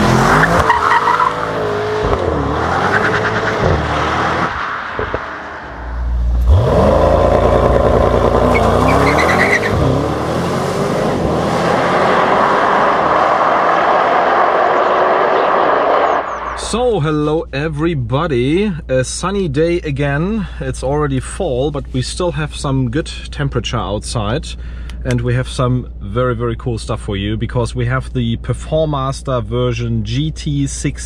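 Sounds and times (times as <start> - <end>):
car engine accelerating hard: 0.0 - 16.8.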